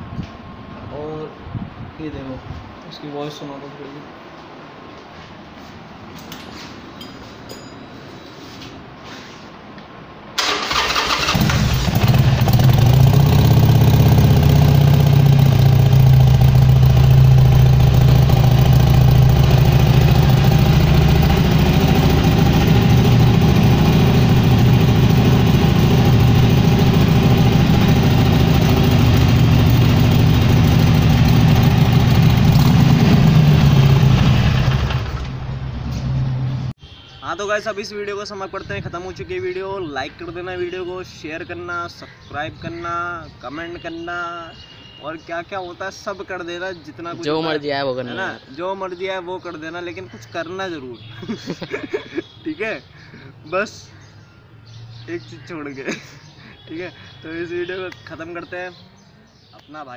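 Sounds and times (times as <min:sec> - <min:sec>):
motorcycle engine starting and idling: 0:10.4 - 0:36.0.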